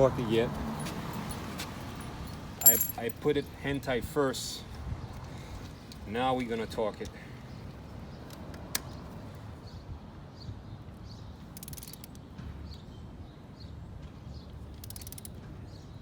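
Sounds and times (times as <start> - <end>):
torque wrench ratchet clicking: 11.6 - 12.2, 14.7 - 15.4.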